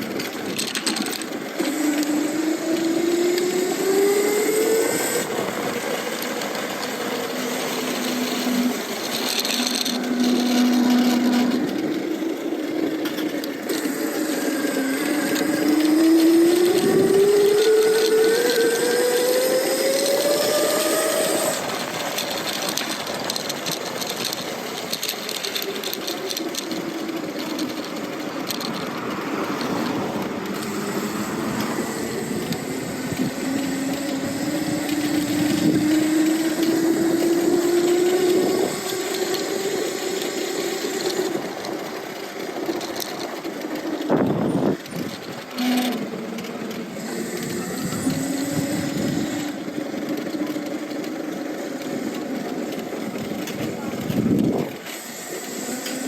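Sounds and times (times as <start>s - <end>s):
electric bike motor whining: 0.0s - 56.0s
wind and road noise: 0.0s - 56.0s.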